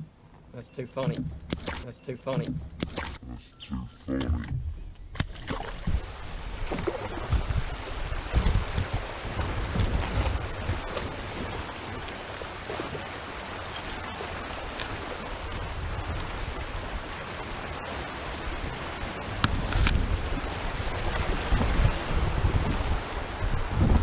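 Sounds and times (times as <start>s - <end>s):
wind rumbling on microphone: 5.8s - 24.0s
river water hissing: 6.0s - 24.0s.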